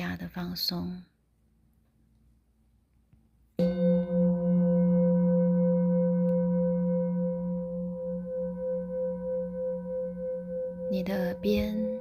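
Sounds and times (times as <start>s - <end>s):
singing bowl ringing: 3.6s - 12.0s.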